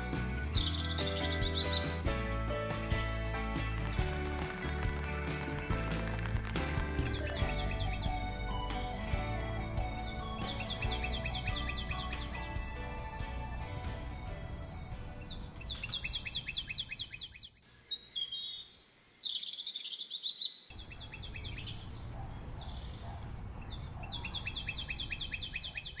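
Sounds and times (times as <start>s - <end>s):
bird chirping rapidly: 0.0s - 2.1s, 6.2s - 26.0s
birds whistling calls: 0.0s - 2.1s, 6.8s - 26.0s
soft background music: 0.0s - 16.3s.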